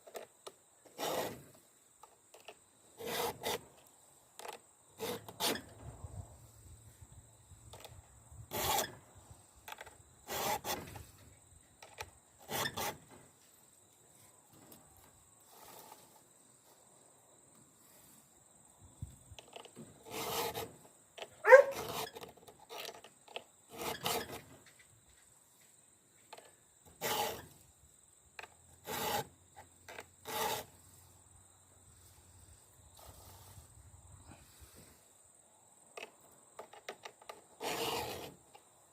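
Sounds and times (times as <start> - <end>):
file rasping on chainsaw chain: 1.0 - 1.4, 3.0 - 3.6, 5.0 - 5.6, 8.5 - 9.0, 10.2 - 10.8, 12.4 - 13.0, 20.0 - 20.7, 21.5 - 23.0, 23.7 - 24.4, 27.0 - 27.5, 28.8 - 29.3, 29.9 - 30.8, 37.6 - 38.4
file squeal: 1.0 - 1.4, 3.0 - 3.6, 5.0 - 5.7, 8.5 - 9.0, 10.2 - 11.0, 12.4 - 13.1, 20.0 - 20.8, 21.4 - 23.0, 23.7 - 24.5, 27.0 - 27.6, 28.8 - 29.3, 30.2 - 30.8, 37.6 - 38.4.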